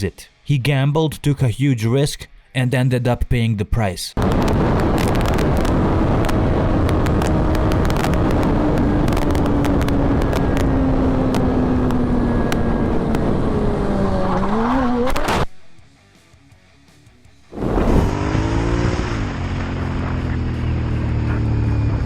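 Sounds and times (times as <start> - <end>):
rushing wind noise: 4.2 - 14.2
motorcycle engine: 4.9 - 15.5, 17.6 - 22.0.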